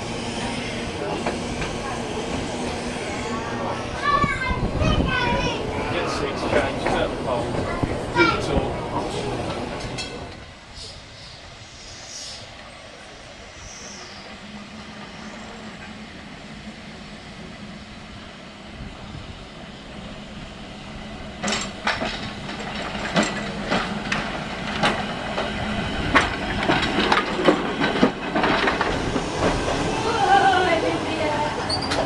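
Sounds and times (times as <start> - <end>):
tram humming: 0.0 - 32.0
wheels clattering over rail joints: 3.6 - 10.5, 21.0 - 32.0.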